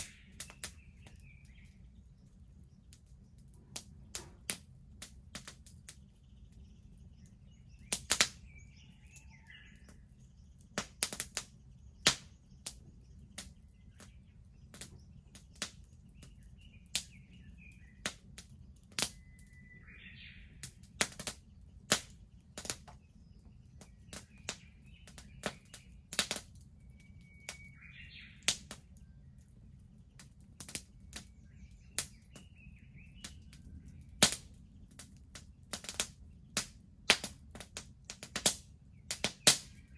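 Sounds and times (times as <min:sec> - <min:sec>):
wood fire crackling and popping: 0:00.0 - 0:39.9
faint bird call: 0:07.8 - 0:10.2.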